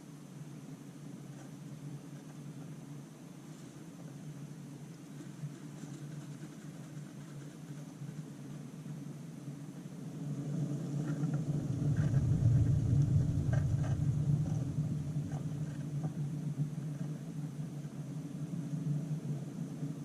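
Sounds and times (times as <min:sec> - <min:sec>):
low rumble: 0:10.0 - 0:18.1.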